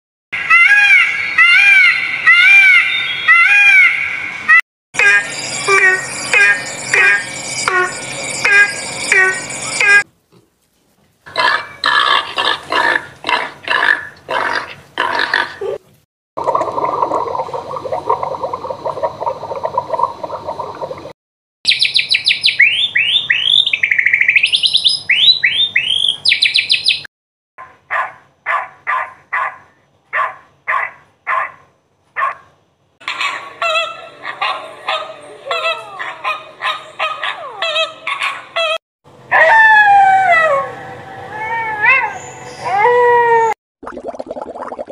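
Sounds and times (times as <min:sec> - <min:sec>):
rapid high chirping: 0:05.0 - 0:10.0
dog barks: 0:27.6 - 0:32.5, 0:34.2 - 0:39.5.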